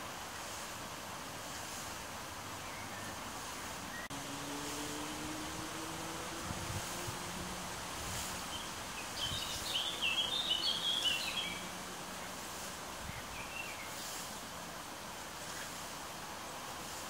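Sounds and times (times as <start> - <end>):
outdoor background noise: 0.0 - 17.0
songbird warbling chirps: 8.5 - 11.7.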